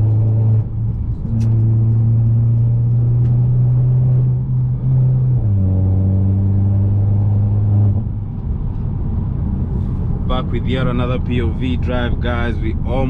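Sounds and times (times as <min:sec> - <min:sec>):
car engine droning while driving: 0:00.0 - 0:13.0.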